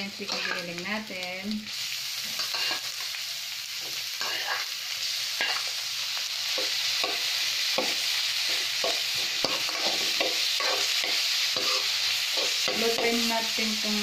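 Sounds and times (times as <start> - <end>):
meat frying in oil: 0.0 - 14.0
spoon scraping a pan: 0.2 - 0.8, 2.3 - 3.1, 3.8 - 4.8, 5.4 - 5.7, 6.5 - 13.3.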